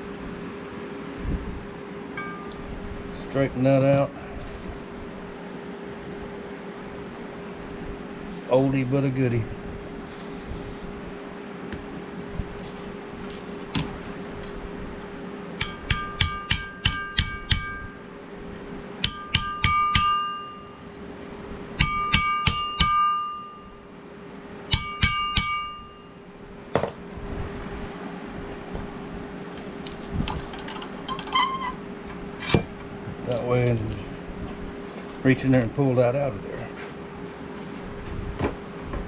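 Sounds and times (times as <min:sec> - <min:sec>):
steady low hum: 0:00.0 - 0:39.0
hammer tapping on steel: 0:15.6 - 0:18.0, 0:19.0 - 0:20.8, 0:21.8 - 0:23.7, 0:24.7 - 0:26.1.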